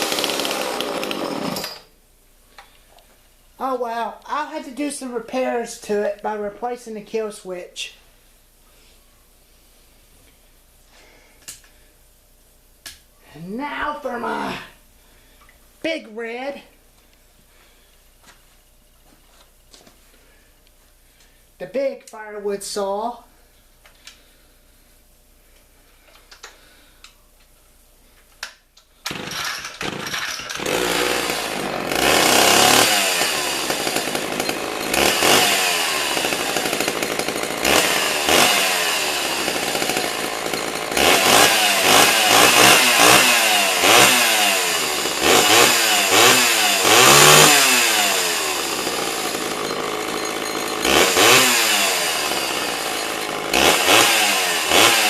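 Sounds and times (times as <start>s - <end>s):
chainsaw starting and revving: 0.0s - 1.9s, 13.4s - 14.8s, 29.1s - 55.0s.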